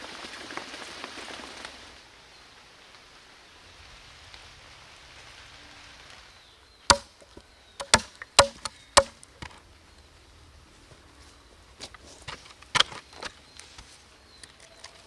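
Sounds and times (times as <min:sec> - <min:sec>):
faint steady hiss: 0:00.0 - 0:15.0
blade chopping into wood: 0:06.9 - 0:07.2, 0:07.8 - 0:09.6.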